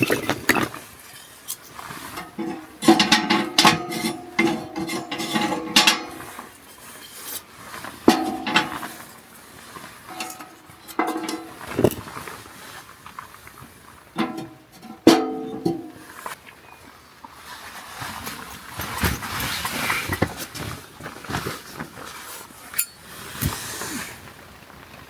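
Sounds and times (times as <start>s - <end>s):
metal cookware clinking: 2.1s - 6.6s, 8.0s - 9.3s, 10.1s - 12.0s, 14.2s - 16.0s.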